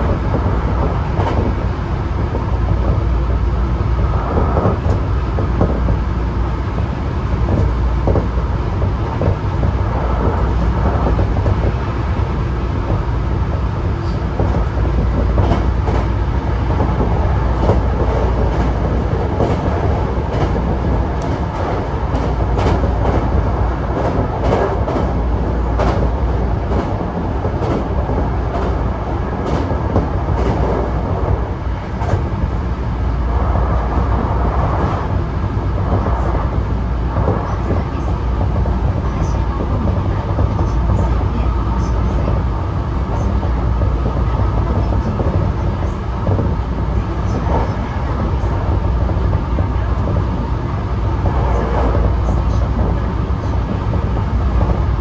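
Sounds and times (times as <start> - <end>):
train rumble from inside: 0.0 - 55.0.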